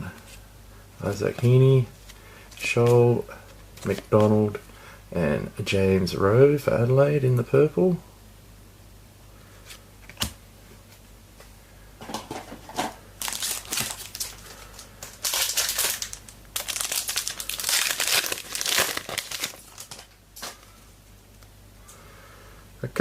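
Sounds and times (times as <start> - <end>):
card packet wrapper crinkling: 13.2 - 20.6.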